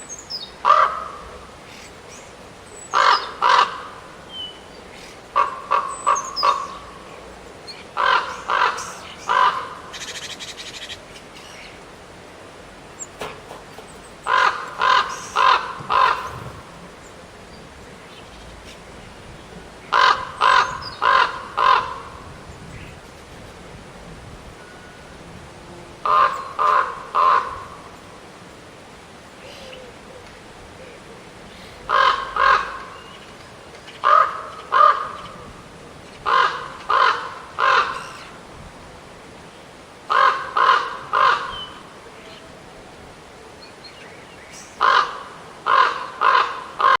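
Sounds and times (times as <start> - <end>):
raven cawing: 0.6 - 1.4, 2.9 - 4.2, 5.3 - 7.0, 8.0 - 10.4, 14.2 - 17.1, 19.9 - 22.3, 26.0 - 27.8, 31.9 - 33.0, 34.0 - 35.4, 36.2 - 38.2, 40.1 - 41.9, 44.8 - 47.0.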